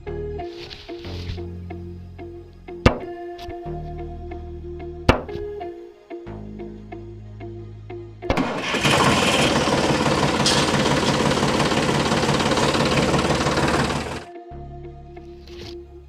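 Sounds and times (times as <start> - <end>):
small motor rattling: 8.4 - 14.3.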